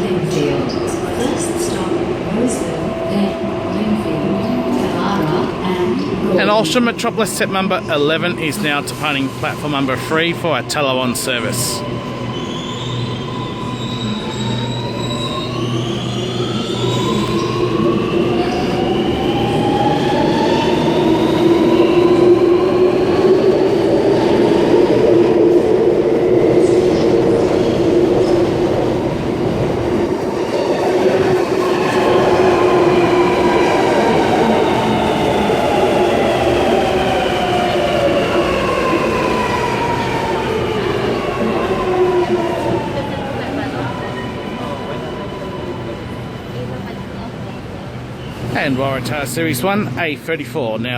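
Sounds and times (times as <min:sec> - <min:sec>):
rumble of wheels on rail: 0:11.8 - 0:49.0.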